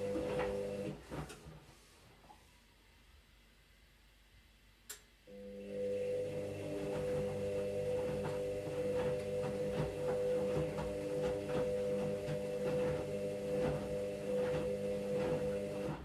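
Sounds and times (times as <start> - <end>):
washing machine motor hum: 0.0 - 1.8, 5.3 - 16.0.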